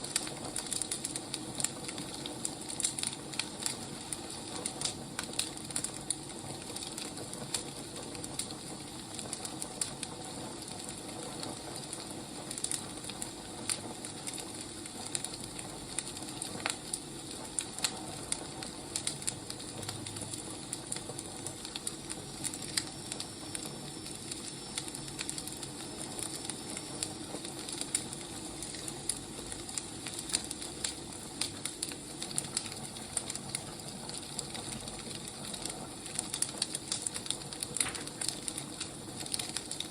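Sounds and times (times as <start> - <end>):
burning logs hissing: 0.0 - 39.9
wood fire crackling: 0.0 - 39.9.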